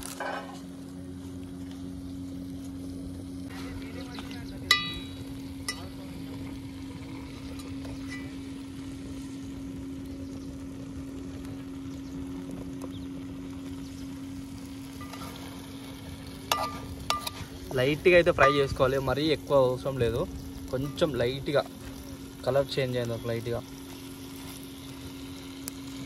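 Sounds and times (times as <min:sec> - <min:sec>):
chicken sizzling in a pot: 0:00.0 - 0:26.0
steady low hum: 0:00.0 - 0:26.0.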